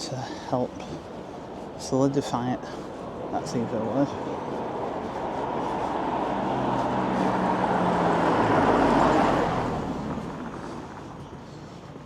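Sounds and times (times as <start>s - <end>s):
vehicle passing by: 3.1s - 11.9s.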